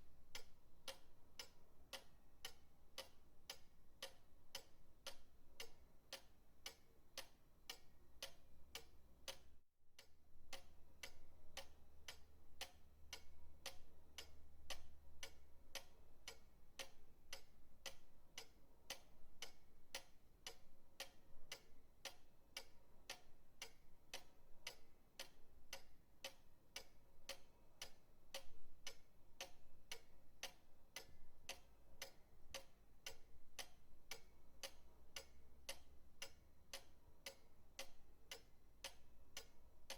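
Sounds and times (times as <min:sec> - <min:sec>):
pendulum clock ticking faintly: 0:00.0 - 0:39.9.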